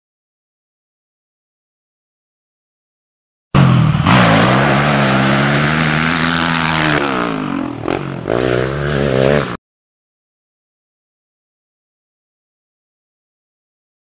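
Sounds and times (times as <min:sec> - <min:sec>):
off-road vehicle engine revving: 0:03.6 - 0:09.6.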